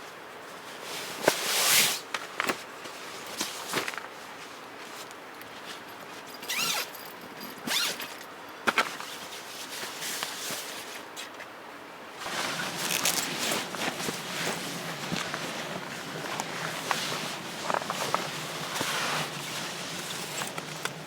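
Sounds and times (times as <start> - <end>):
rustling: 12.2 - 21.0.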